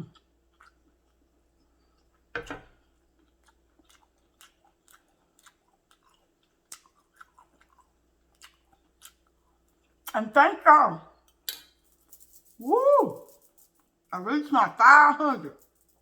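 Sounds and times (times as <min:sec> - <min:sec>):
person chewing food: 0:00.0 - 0:10.2.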